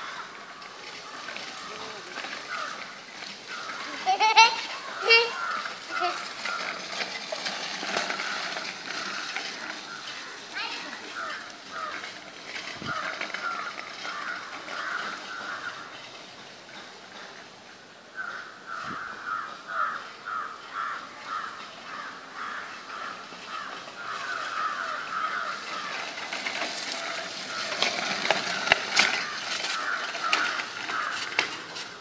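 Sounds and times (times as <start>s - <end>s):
bird calling repeatedly: 1.0s - 6.8s.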